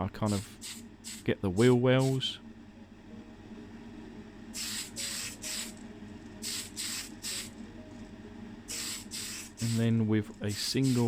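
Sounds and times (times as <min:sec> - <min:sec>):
aerosol can spraying: 0:00.3 - 0:01.3, 0:04.6 - 0:05.8, 0:06.4 - 0:07.6, 0:08.7 - 0:11.0.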